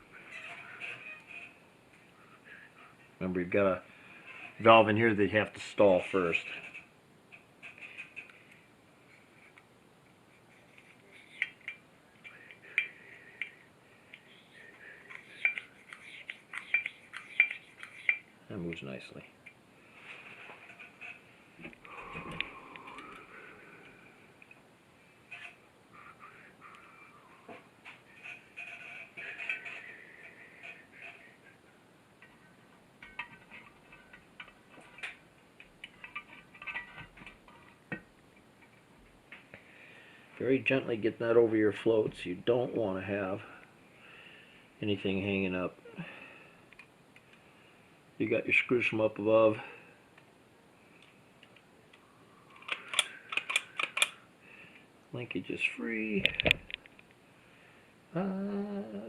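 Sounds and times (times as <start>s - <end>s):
small metal parts clicking and scraping: 6.2s - 8.6s, 10.6s - 14.4s, 15.0s - 18.3s, 20.3s - 21.3s, 25.3s - 25.6s, 27.9s - 31.5s, 33.0s - 38.0s, 52.6s - 54.2s
carburetor parts clicking and clinking: 15.1s - 18.8s, 33.0s - 38.8s, 52.6s - 54.2s.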